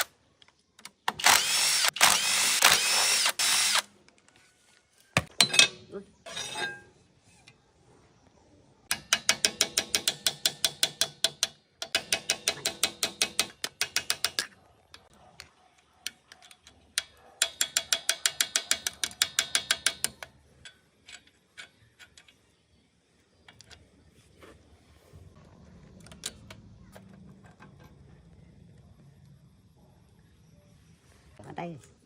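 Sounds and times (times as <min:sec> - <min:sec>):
ratchet wrench clicking: 0:17.0 - 0:20.3.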